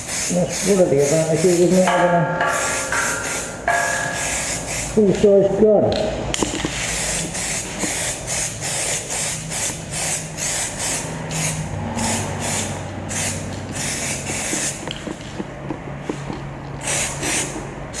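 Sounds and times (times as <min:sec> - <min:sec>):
spray can hissing: 0:00.0 - 0:01.9, 0:02.5 - 0:05.0, 0:06.6 - 0:15.1, 0:16.8 - 0:18.0.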